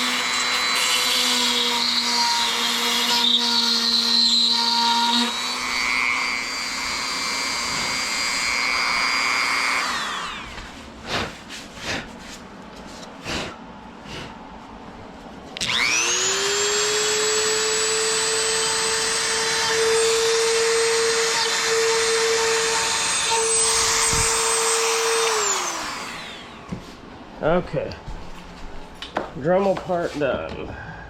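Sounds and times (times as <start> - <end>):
rotary tool whining: 0.0 - 11.3, 15.6 - 26.8.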